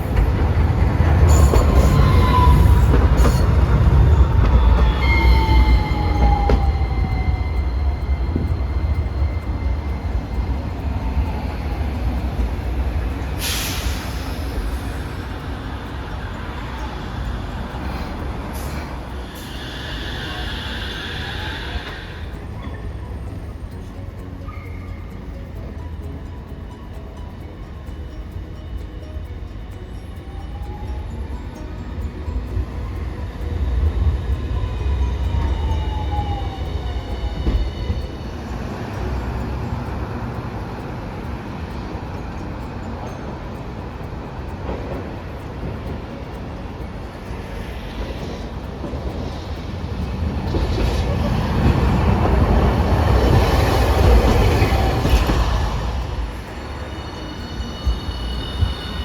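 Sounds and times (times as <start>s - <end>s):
high steady ringing tone: 0.0s - 59.0s
steady background noise: 0.0s - 59.0s
streetcar rumbling on track: 0.0s - 59.0s.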